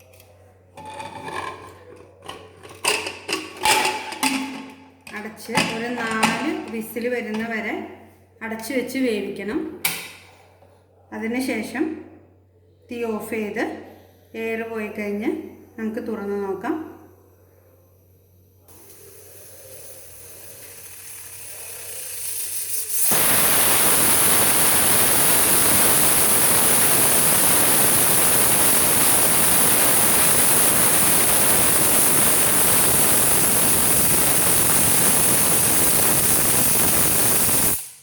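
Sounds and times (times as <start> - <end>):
pressure cooker steam hissing: 18.6 - 38.0.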